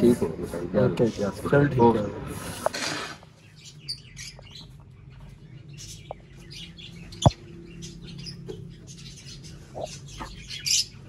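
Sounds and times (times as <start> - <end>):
small birds chirping: 0.8 - 11.0.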